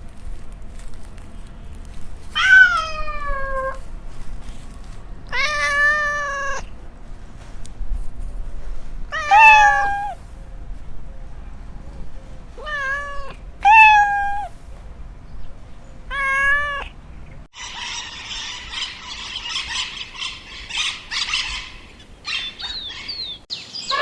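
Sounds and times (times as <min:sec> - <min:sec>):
cat meowing: 0:02.4 - 0:03.8, 0:05.3 - 0:06.6, 0:09.1 - 0:10.3, 0:12.6 - 0:14.6, 0:16.1 - 0:16.9.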